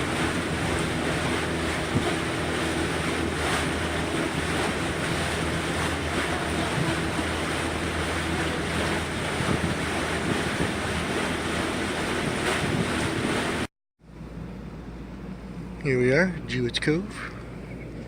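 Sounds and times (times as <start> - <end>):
water rushing: 0.0 - 13.7
wind on microphone: 0.0 - 13.7
boat motor humming: 0.0 - 18.0.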